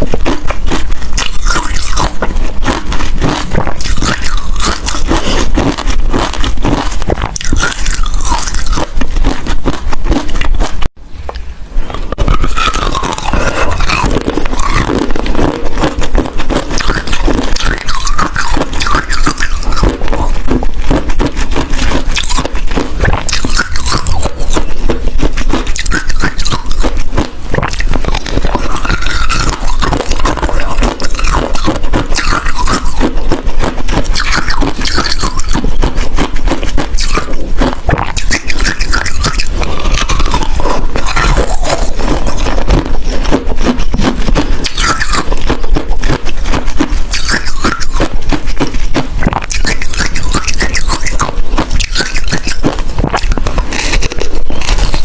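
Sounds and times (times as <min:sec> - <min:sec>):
ice being chewed: 0:00.0 - 0:11.0, 0:11.8 - 0:55.0.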